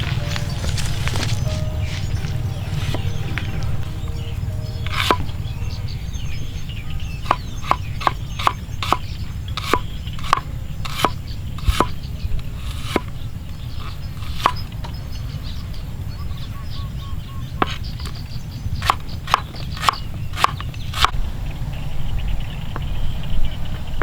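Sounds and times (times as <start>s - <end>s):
steady low rumble: 0.0s - 10.1s, 21.1s - 24.0s.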